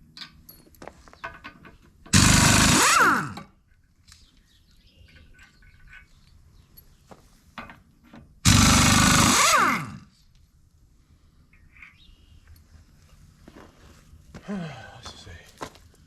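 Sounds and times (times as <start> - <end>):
metal nuts clicking and knocking: 0.0 - 2.2
impact wrench whirring: 2.1 - 3.5, 8.4 - 10.1.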